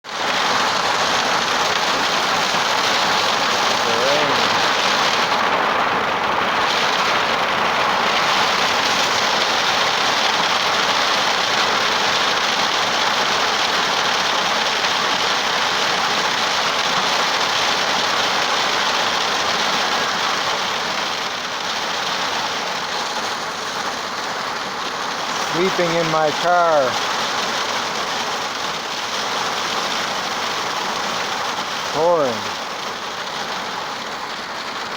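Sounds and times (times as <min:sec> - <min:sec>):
heavy rain on car roof: 0:00.1 - 0:34.9.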